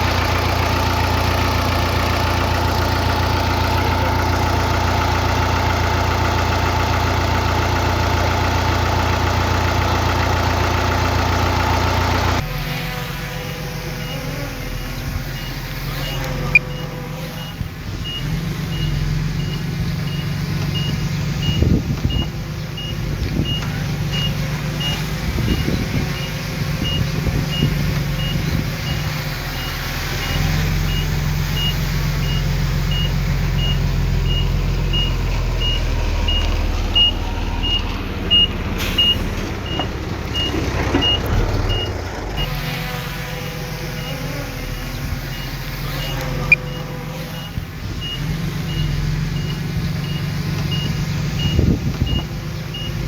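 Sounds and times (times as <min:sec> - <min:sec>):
diesel machine running under load: 0:00.0 - 0:53.0
reversing alarm beeping: 0:13.9 - 0:42.7, 0:44.0 - 0:53.0.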